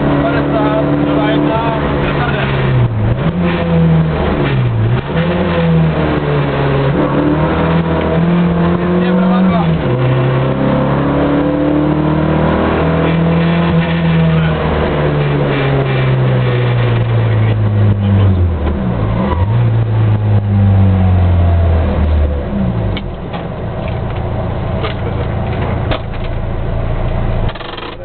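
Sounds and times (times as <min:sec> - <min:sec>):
rally car engine from inside cabin: 0:00.0 - 0:28.0
road noise: 0:00.0 - 0:28.0.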